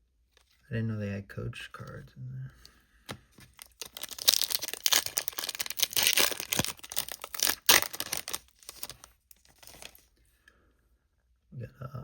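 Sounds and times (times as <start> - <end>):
foil wrapper tearing and crinkling: 3.5 - 10.0.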